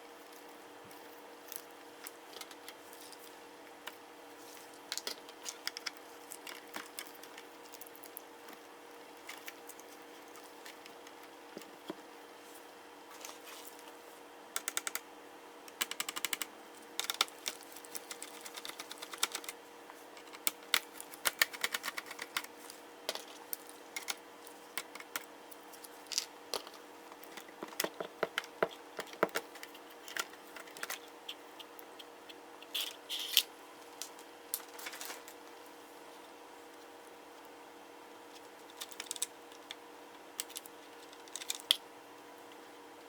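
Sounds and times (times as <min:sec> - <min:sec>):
laptop parts and tools clicking: 0:14.6 - 0:15.0, 0:15.7 - 0:19.6, 0:20.2 - 0:25.3, 0:26.1 - 0:33.5, 0:38.7 - 0:39.8, 0:40.4 - 0:41.8.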